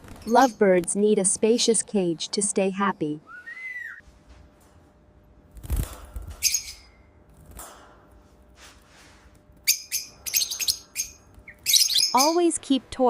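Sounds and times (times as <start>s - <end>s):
lovebirds chirping: 0.2s - 1.2s, 9.6s - 13.0s.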